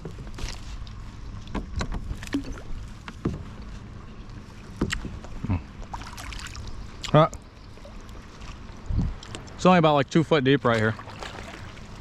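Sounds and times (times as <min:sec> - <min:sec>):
paddle splashing in water: 0:05.9 - 0:06.7, 0:10.7 - 0:12.0.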